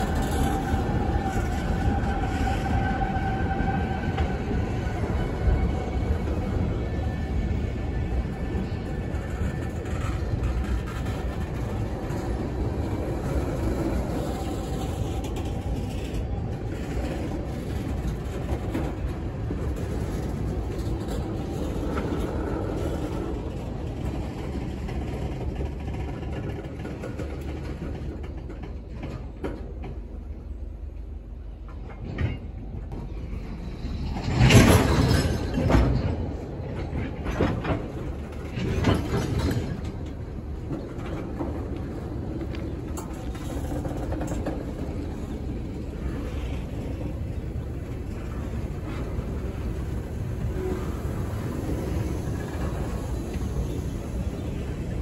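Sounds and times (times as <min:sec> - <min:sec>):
train wheels rumbling on rails: 0:00.0 - 0:55.0
wheel clatter and clacks: 0:33.9 - 0:46.5.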